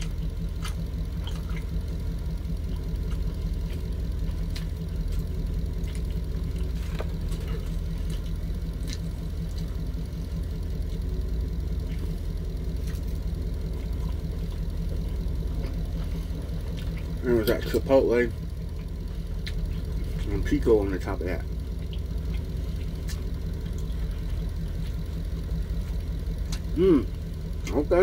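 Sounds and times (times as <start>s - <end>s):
chewing clicks: 0.0s - 1.9s, 2.6s - 9.8s, 18.8s - 20.3s, 21.8s - 25.1s, 25.8s - 26.8s
vehicle engine idling: 0.0s - 28.0s.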